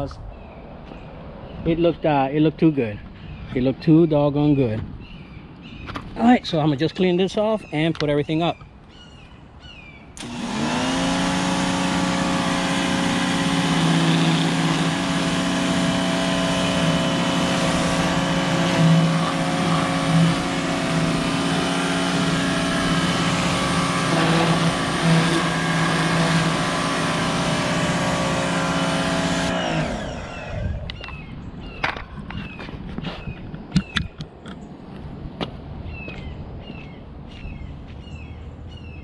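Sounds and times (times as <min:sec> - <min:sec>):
water spray hissing: 0:10.2 - 0:29.6
pressure washer motor running: 0:10.2 - 0:30.8.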